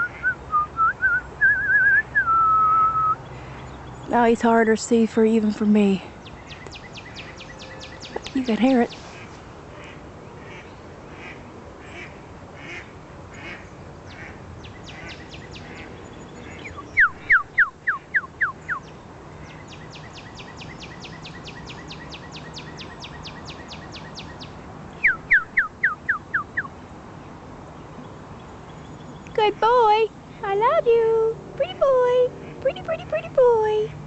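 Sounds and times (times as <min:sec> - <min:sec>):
person whistling bird song: 0:00.0 - 0:03.2, 0:17.0 - 0:18.8, 0:25.0 - 0:26.7
bird trilling: 0:06.2 - 0:09.0, 0:14.1 - 0:26.8
faint duck quacks: 0:09.1 - 0:17.3.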